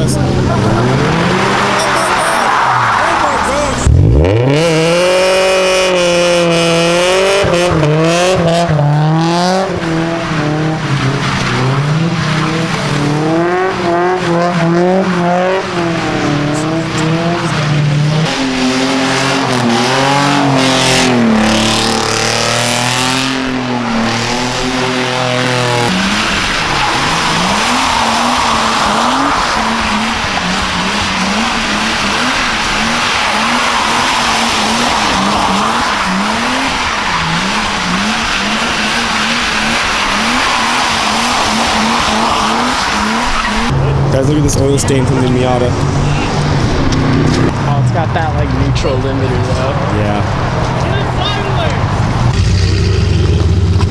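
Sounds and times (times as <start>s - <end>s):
car engine revving: 0.0s - 53.9s
tyre squealing: 23.7s - 43.8s.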